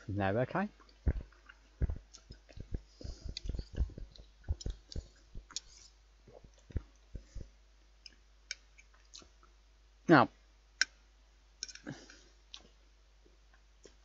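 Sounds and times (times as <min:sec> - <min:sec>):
chewing with wet mouth clicks: 0:00.8 - 0:05.7.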